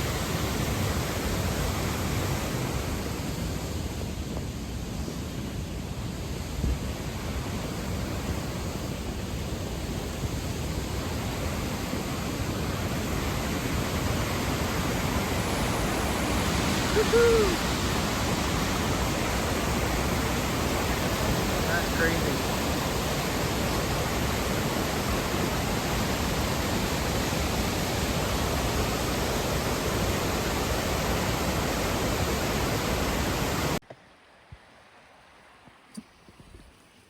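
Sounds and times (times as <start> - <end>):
waterfall roaring: 6.3 - 33.8
person shouting woohoo: 16.8 - 17.8.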